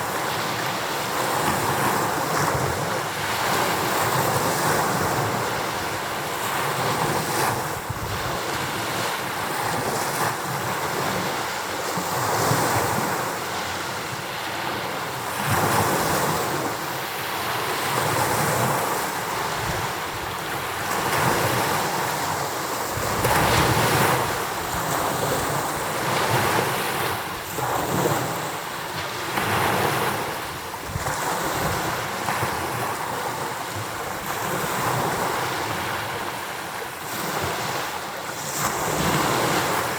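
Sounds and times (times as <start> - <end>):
waves breaking on shore: 0.0 - 39.9
wind buffeting microphone: 22.8 - 28.4.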